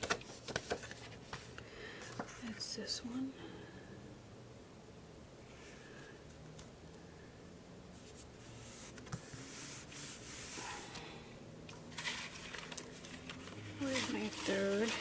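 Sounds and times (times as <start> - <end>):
paper sheets rustling: 0.0 - 2.3, 11.8 - 15.0.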